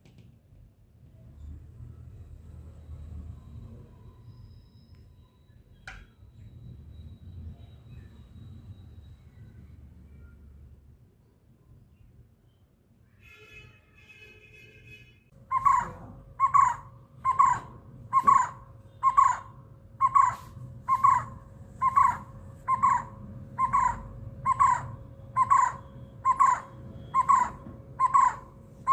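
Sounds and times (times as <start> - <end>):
bird call: 15.5 - 28.9.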